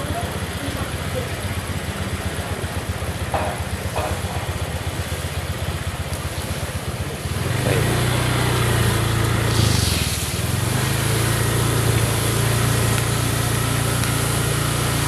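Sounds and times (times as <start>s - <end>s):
small motorcycle engine: 0.0s - 15.0s
brief hiss: 9.4s - 10.4s.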